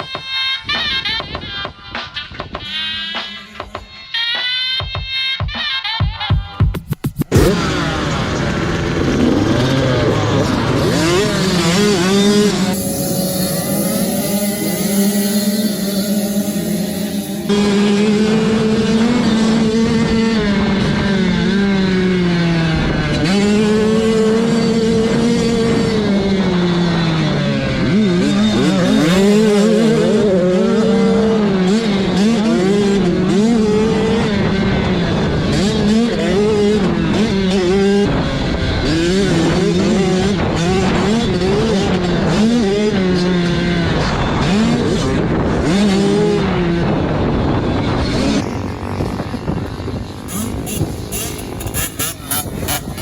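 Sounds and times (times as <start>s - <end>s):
dirt bike engine revving: 6.9s - 53.0s.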